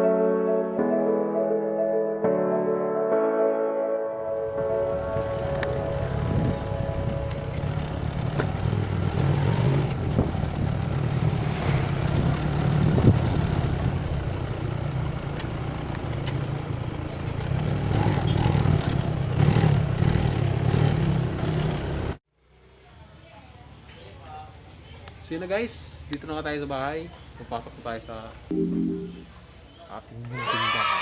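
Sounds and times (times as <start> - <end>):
road and wind noise: 4.4 - 28.5.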